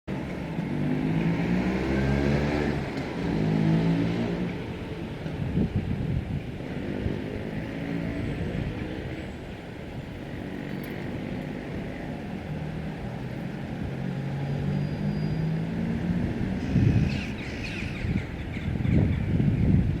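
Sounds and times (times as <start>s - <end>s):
vehicle engine noise: 0.1s - 20.0s.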